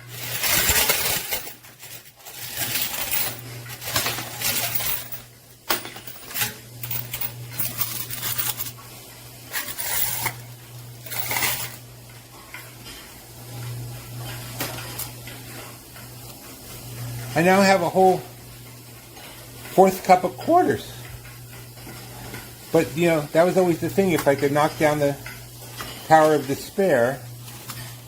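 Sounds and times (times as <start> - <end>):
coins clinking against a cup: 0.1 - 8.8, 9.5 - 11.8.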